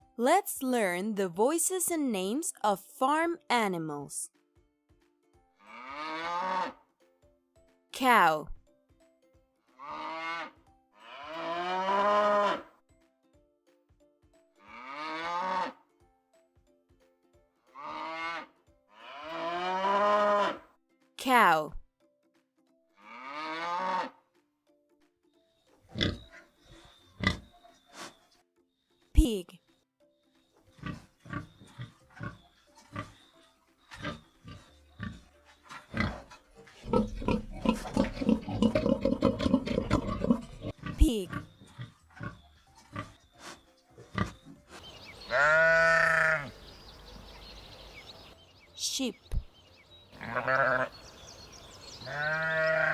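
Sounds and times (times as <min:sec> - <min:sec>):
cow mooing: 0:05.6 - 0:06.8, 0:09.8 - 0:12.7, 0:14.7 - 0:15.8, 0:17.8 - 0:20.6, 0:23.0 - 0:24.2, 0:36.0 - 0:43.1, 0:45.3 - 0:46.6, 0:50.2 - 0:51.0, 0:52.1 - 0:52.9
pig grunting: 0:25.9 - 0:28.2, 0:30.8 - 0:33.2, 0:33.9 - 0:46.6.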